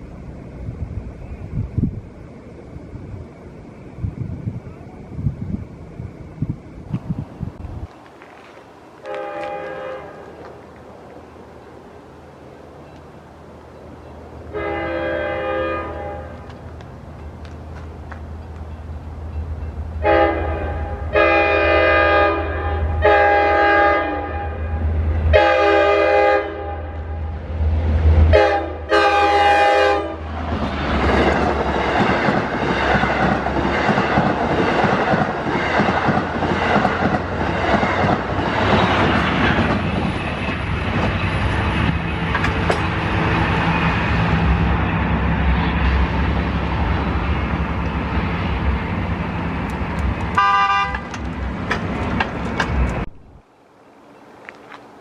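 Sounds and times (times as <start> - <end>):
train wheels rumbling on rails: 0.0 - 53.2
train horn blasts: 9.0 - 10.4, 14.5 - 16.5, 20.0 - 27.3, 28.3 - 30.3, 50.4 - 51.2.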